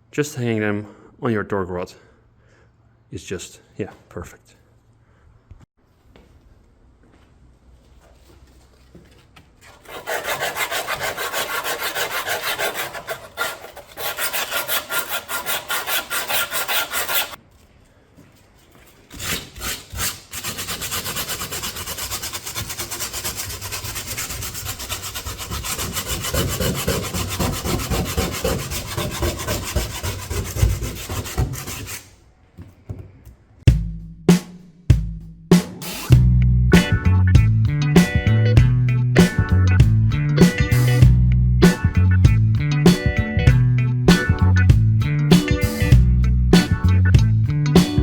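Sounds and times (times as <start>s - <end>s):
sanding metal pipes: 9.8s - 17.4s, 19.2s - 32.1s.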